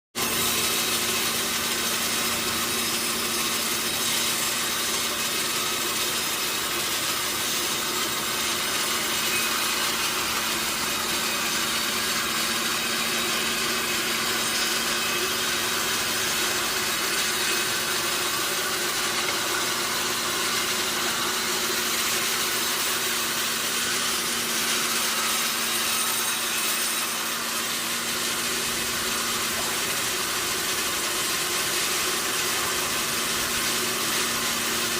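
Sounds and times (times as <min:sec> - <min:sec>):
saw cutting through log: 0:00.2 - 0:34.9.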